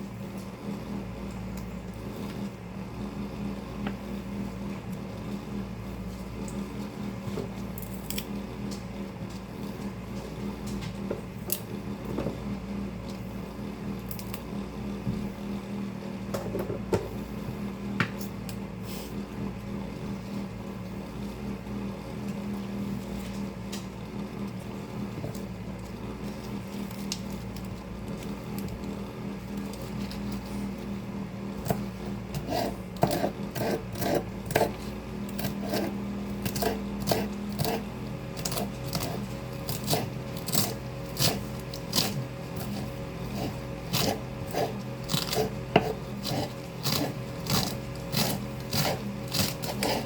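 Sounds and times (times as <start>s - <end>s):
electric fan humming: 0.0s - 50.0s
knife chopping greens: 31.6s - 50.0s.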